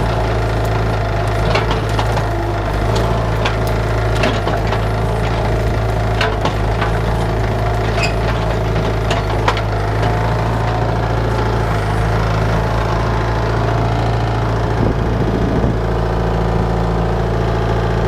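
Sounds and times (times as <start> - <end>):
sharp knocks and cracks: 0.0 - 13.0
diesel excavator engine running: 0.0 - 18.0.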